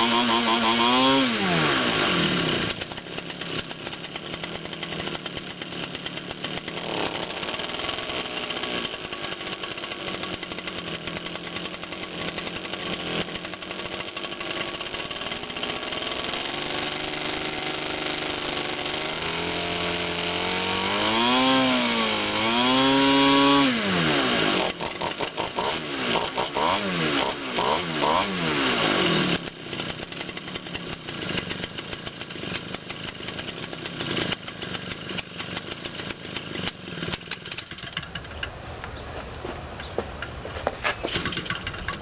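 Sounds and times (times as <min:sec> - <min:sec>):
model aircraft engine revving: 0:00.0 - 0:38.5.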